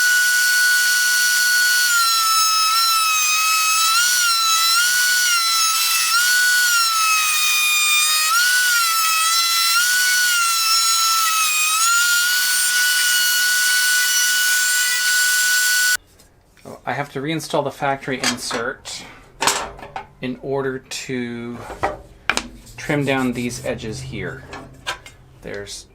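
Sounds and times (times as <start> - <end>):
power tool motor whining: 0.0 - 16.0.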